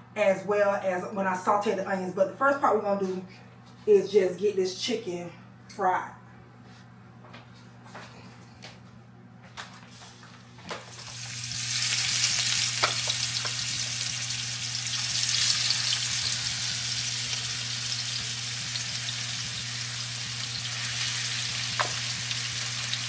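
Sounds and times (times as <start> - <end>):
low steady hum: 0.0 - 23.0
chicken sizzling in oil: 11.0 - 23.0.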